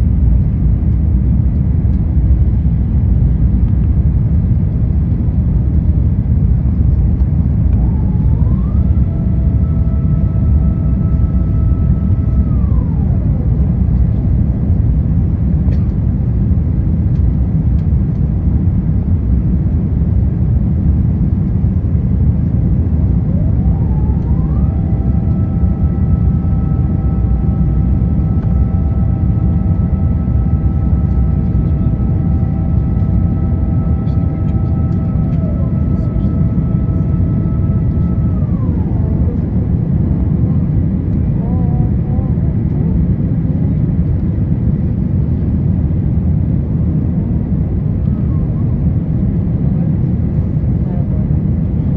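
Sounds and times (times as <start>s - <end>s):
jet airliner cabin rumble: 0.0s - 51.9s
rising whining tone: 6.8s - 16.0s, 21.7s - 45.5s.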